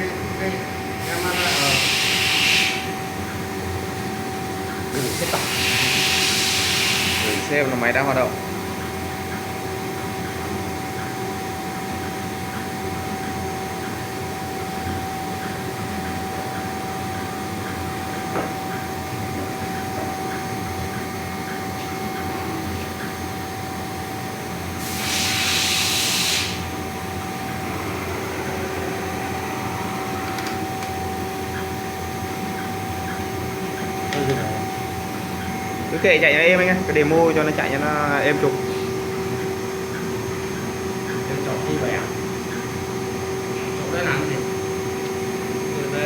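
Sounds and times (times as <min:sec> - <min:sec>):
engraving machine spindle whine: 0:00.0 - 0:08.6, 0:24.6 - 0:46.0
loud hiss: 0:01.0 - 0:02.9, 0:05.0 - 0:07.5, 0:24.8 - 0:26.8.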